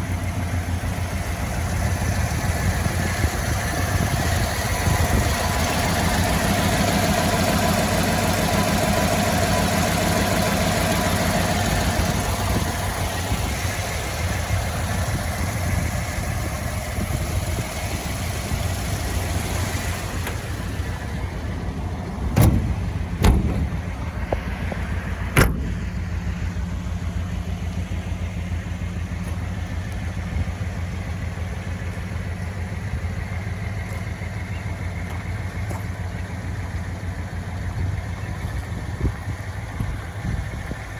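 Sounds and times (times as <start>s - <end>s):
car engine idling: 0.0s - 40.9s
sharp knocks: 22.4s - 24.4s.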